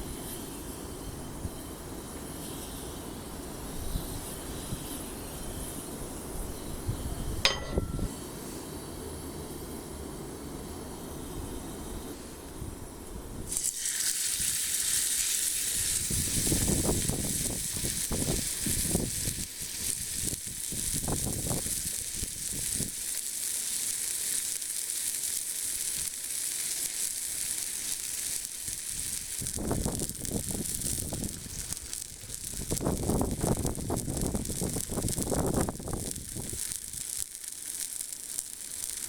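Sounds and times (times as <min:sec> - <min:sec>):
steak sizzling on iron plate: 0:13.5 - 0:39.0
low crackling: 0:26.8 - 0:39.0.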